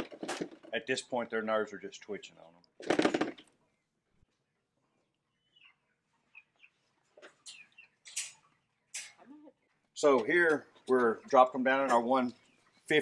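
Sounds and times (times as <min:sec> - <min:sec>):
faint bird chirps: 0:03.6 - 0:09.8.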